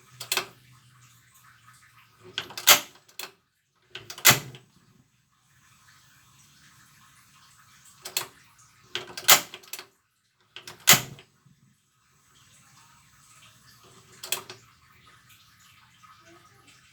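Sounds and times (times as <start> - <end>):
gas stove clicks and clunks: 2.4 - 3.0, 4.0 - 4.6, 9.0 - 9.8, 10.6 - 11.2.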